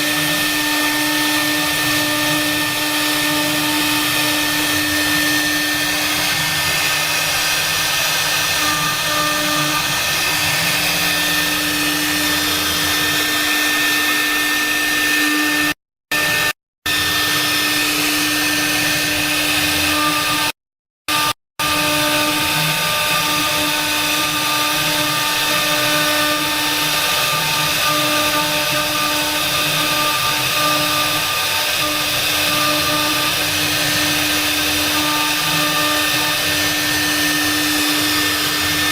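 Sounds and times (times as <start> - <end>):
cnc router spindle whining: 0.0 - 38.9.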